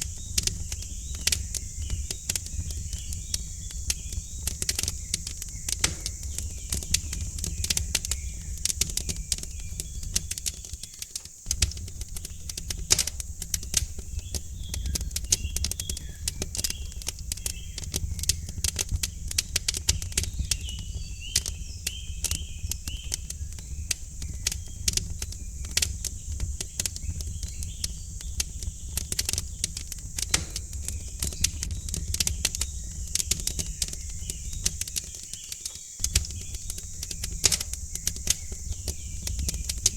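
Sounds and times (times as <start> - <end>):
wood fire crackling: 0.0 - 39.9
faint bird chirps: 13.6 - 39.9.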